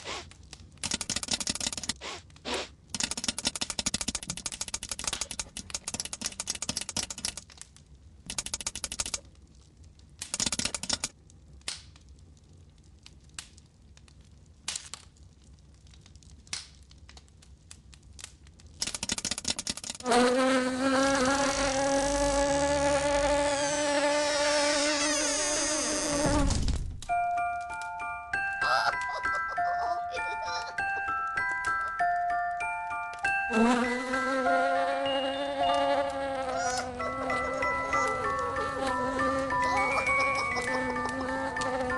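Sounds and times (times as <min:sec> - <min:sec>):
cartoon fly buzzing: 0:20.0 - 0:26.5, 0:33.5 - 0:41.9.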